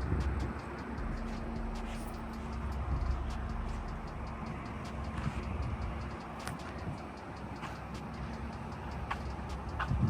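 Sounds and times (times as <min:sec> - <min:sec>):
car engine idling: 0:00.0 - 0:10.0
faint regular ticking: 0:00.0 - 0:10.0.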